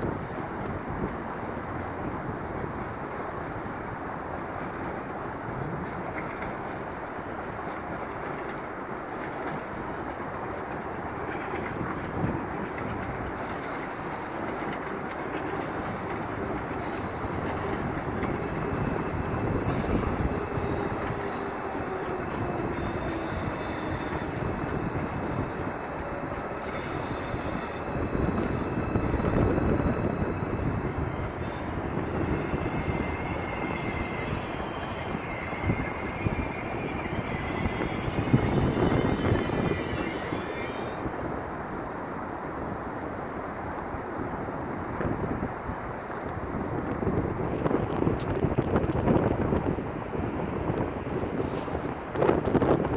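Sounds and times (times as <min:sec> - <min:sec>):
train wheels rumbling on track: 0:00.0 - 0:52.9
high-pitched wheel squeals: 0:02.8 - 0:03.8, 0:06.3 - 0:07.8, 0:13.4 - 0:14.6, 0:15.6 - 0:41.3.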